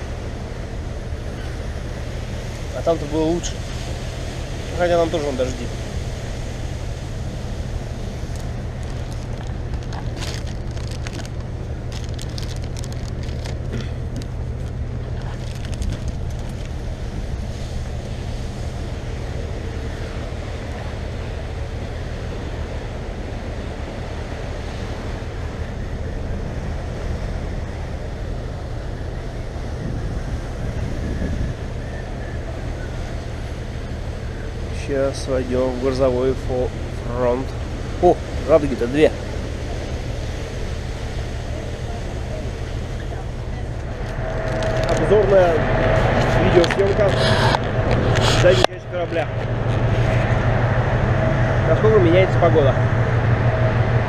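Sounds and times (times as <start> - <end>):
low rumble of ship and sea: 0.0 - 54.0
wind buffeting microphone: 0.0 - 54.0
faint crackles: 8.3 - 16.9, 42.9 - 45.2.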